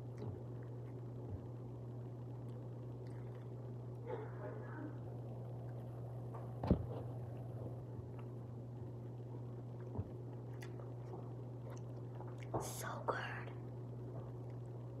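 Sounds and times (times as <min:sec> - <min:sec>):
steady low hum: 0:00.0 - 0:15.0
person chewing food: 0:02.4 - 0:04.0, 0:09.6 - 0:12.6.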